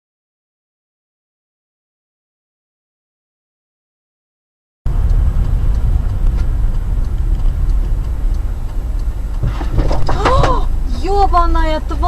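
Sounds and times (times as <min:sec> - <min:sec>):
vehicle rumbling on the move: 0:04.9 - 0:12.0
faint regular ticks: 0:05.0 - 0:12.0.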